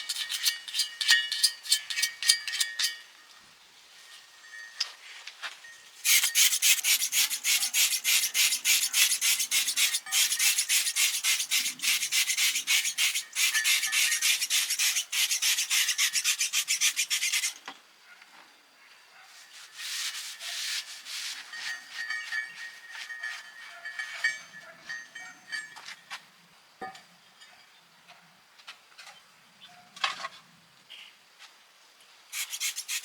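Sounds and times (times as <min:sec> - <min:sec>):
abrasive rubbing on metal: 0:06.0 - 0:17.6, 0:19.5 - 0:22.3, 0:32.4 - 0:33.0.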